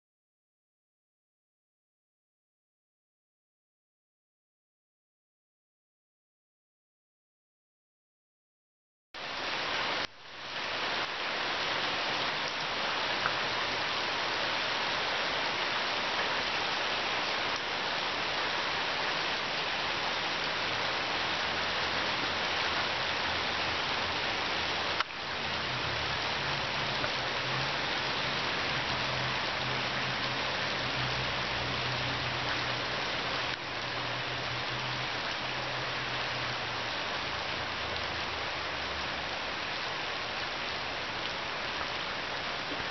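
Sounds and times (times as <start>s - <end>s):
heavy rain pouring: 9.2s - 42.9s.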